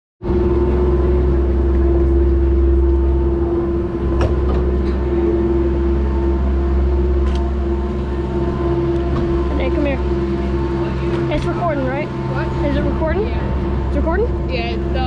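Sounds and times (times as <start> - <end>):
low rumble: 0.2 - 15.0
mechanical hum with drone: 0.2 - 15.0.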